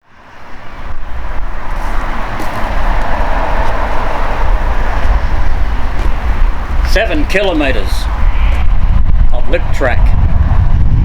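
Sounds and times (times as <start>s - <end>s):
outdoor rushing noise: 0.0s - 11.0s
low rumble: 0.5s - 9.4s, 10.0s - 11.0s.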